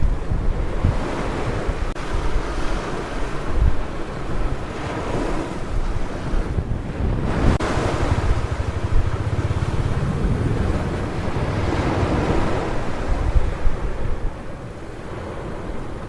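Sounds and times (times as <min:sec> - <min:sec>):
waves breaking on beach: 0:00.0 - 0:16.0
wind buffeting microphone: 0:00.0 - 0:16.0.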